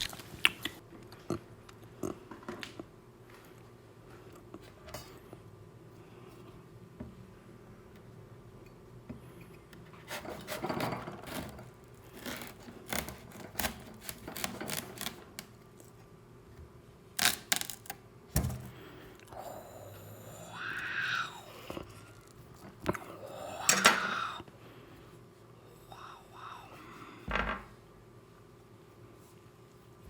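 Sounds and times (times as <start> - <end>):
rubbing and scraping kitchenware: 10.0 - 15.2.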